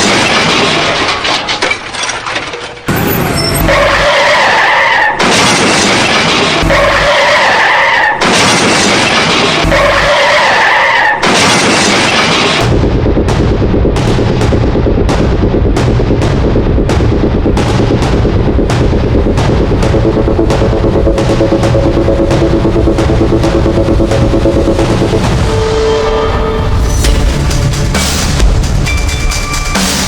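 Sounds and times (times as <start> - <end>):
noisy sound effect with steady tone: 2.9 - 30.0
music with heavy bass beat: 3.6 - 4.0, 6.6 - 7.1, 9.6 - 10.2, 12.6 - 30.0.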